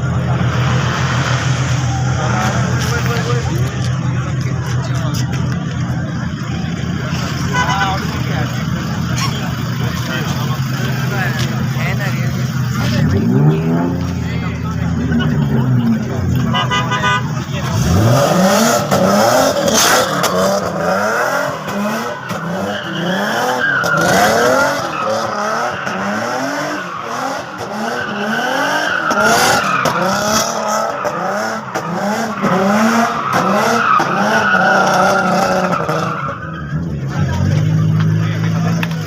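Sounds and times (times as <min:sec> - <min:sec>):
car engines revving: 0:00.0 - 0:39.0.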